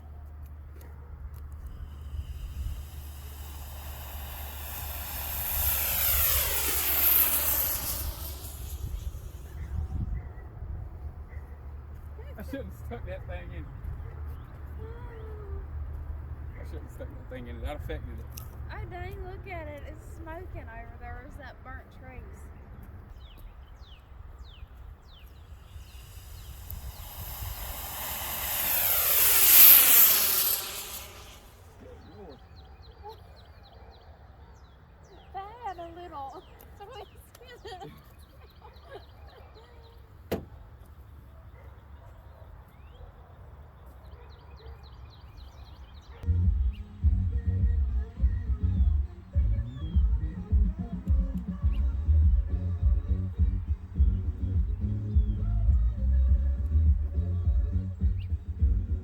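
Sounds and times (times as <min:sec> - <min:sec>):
aircraft passing overhead: 0:01.4 - 0:10.0, 0:25.3 - 0:32.4
rocket motor hissing roar: 0:01.6 - 0:09.8, 0:25.5 - 0:31.7.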